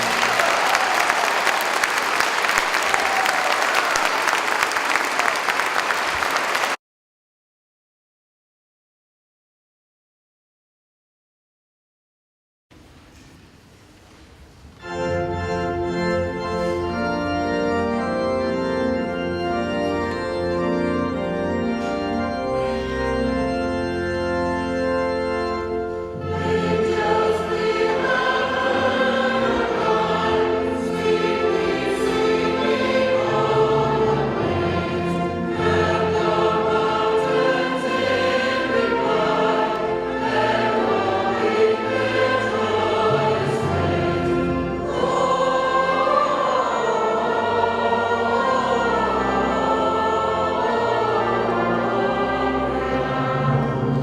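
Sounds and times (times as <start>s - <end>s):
choir singing: 0.0s - 6.7s, 25.6s - 54.0s
organ playing held chords: 14.8s - 54.0s.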